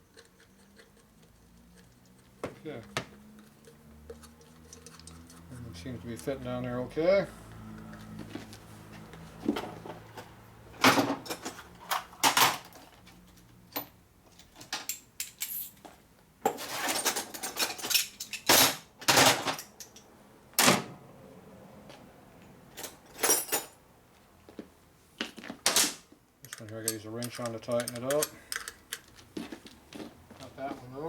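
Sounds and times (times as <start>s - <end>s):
metal bolts clinking and rattling: 13.7s - 15.9s, 16.5s - 20.1s, 26.4s - 29.3s.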